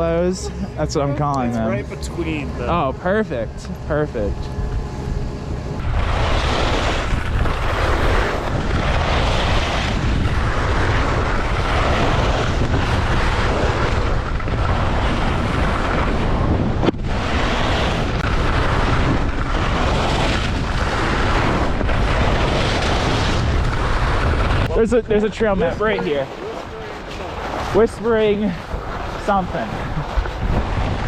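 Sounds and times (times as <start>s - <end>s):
strong wind buffeting microphone: 0.0s - 31.0s.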